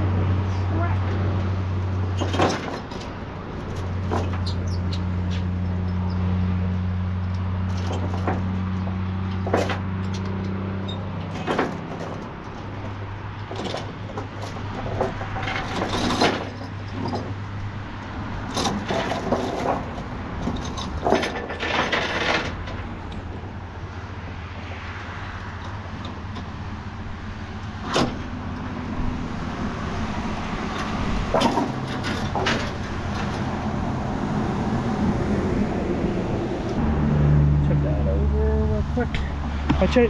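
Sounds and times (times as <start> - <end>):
chains clinking and rattling: 1.1 - 6.2, 7.6 - 17.5, 18.3 - 22.8, 30.7 - 33.6.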